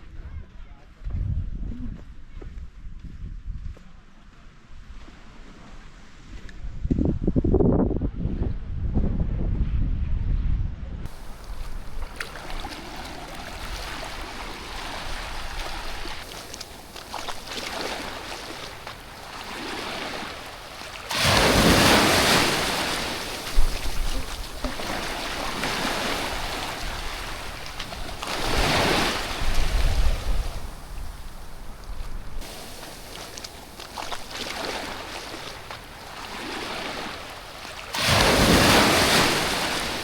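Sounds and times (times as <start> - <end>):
wind buffeting microphone: 0.0 - 3.8, 6.2 - 37.4
sea waves breaking on shore: 11.1 - 40.0.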